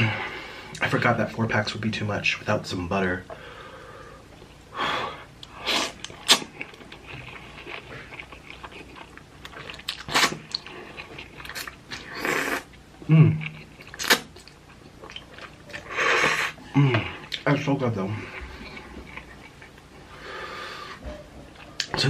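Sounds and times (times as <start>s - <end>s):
wet chewing: 5.4s - 12.8s, 13.4s - 17.5s
noodle slurping: 9.6s - 12.7s
low vocal hum: 16.6s - 17.3s.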